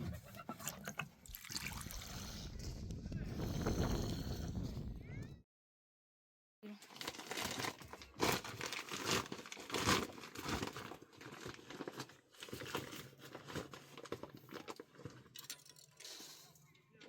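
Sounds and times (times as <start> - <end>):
dry material crinkling: 6.8 - 15.7.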